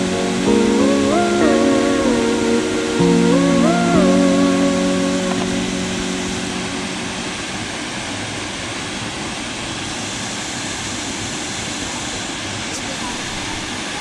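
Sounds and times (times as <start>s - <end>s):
music: 0.0s - 7.3s
waterfall roaring: 0.0s - 14.0s.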